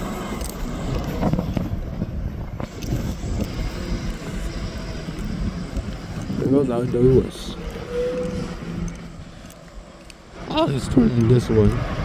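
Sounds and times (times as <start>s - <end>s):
motor vehicle driving past: 3.0s - 10.5s.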